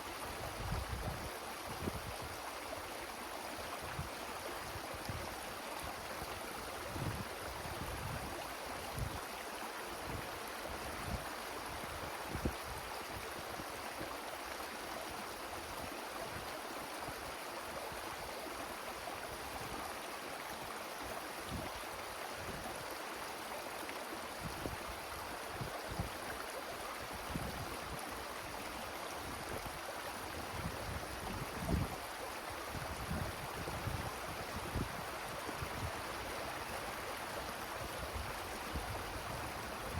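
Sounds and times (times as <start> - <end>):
wind through forest trees: 0.0 - 39.9
wind gusts buffeting microphone: 30.4 - 32.0.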